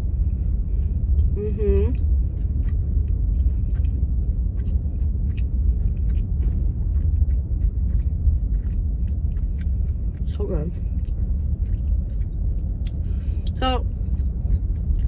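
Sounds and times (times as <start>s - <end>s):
low rumble in car cabin: 0.0s - 15.0s
person chewing crispy food: 0.0s - 15.0s.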